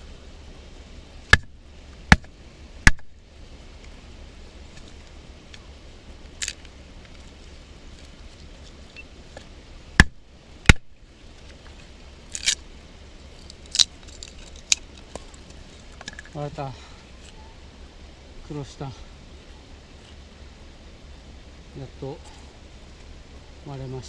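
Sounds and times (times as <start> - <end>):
wood cracking: 6.3 - 12.6, 13.3 - 16.4.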